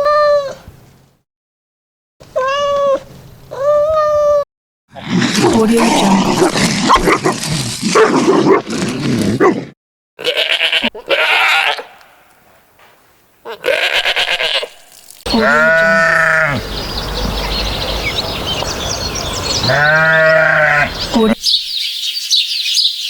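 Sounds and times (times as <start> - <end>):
farm animal bleating: 10.2 - 12.0, 13.4 - 16.9, 19.6 - 21.4
other animal sounds: 13.4 - 22.0.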